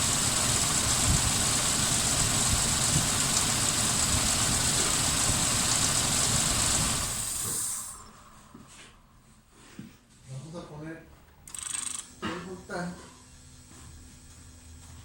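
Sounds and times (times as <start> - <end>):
car engine idling with misfire: 0.0 - 7.9.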